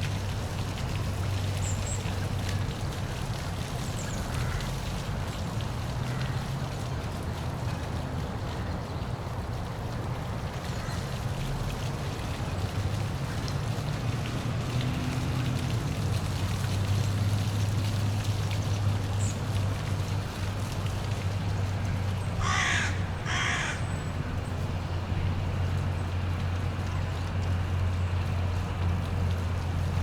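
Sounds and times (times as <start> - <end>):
crow cawing: 4.4 - 4.7, 22.4 - 23.9.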